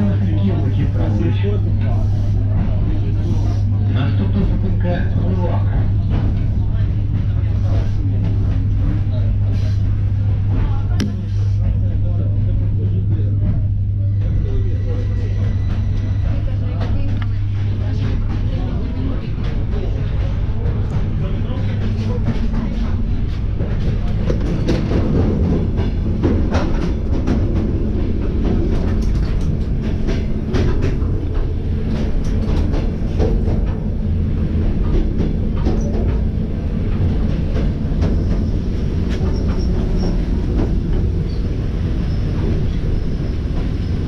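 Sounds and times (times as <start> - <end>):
train wheels rumbling on rails: 0.0 - 44.0
rail joint clicks and knocks: 15.4 - 44.0.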